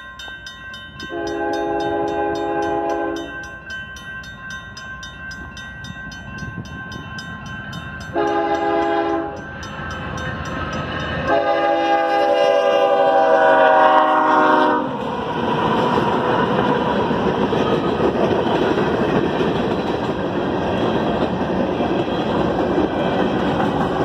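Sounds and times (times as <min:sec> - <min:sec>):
train cars rumbling over rails: 0:00.0 - 0:24.0
locomotive air horn: 0:01.1 - 0:03.3, 0:08.1 - 0:09.4, 0:11.3 - 0:14.9.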